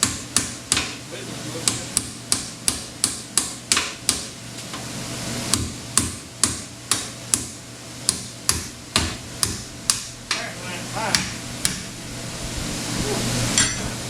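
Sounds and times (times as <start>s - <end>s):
hammer tapping: 0.0s - 1.0s, 1.6s - 4.3s, 5.5s - 10.4s, 11.1s - 11.9s.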